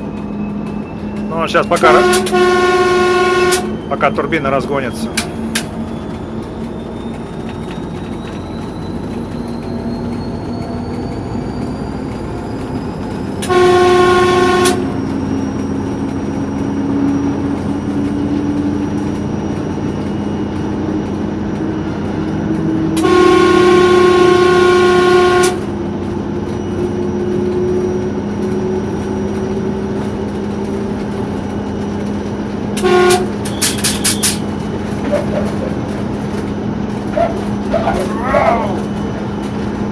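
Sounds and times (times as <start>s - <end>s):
diesel locomotive engine: 0.0s - 39.9s
locomotive horn: 1.5s - 3.8s, 13.4s - 15.5s, 23.0s - 25.8s, 32.8s - 34.4s.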